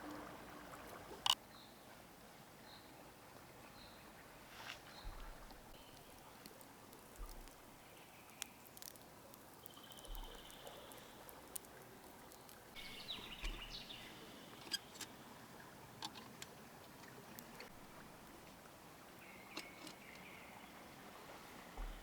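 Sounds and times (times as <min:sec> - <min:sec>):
light ticks and crackles: 0:04.7 - 0:15.2, 0:16.0 - 0:20.3.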